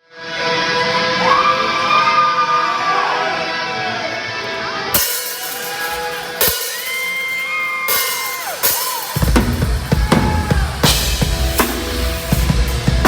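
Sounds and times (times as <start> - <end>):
live metal band playing: 0.1 - 13.0
drum and cymbal hits: 5.0 - 13.0.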